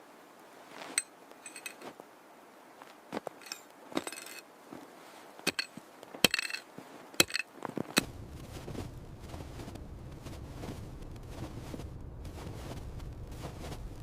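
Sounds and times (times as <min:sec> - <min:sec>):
hard objects knocking and clinking: 0:01.4 - 0:01.8, 0:03.4 - 0:04.4, 0:05.5 - 0:06.6, 0:07.2 - 0:07.5
low rumble: 0:08.0 - 0:14.0.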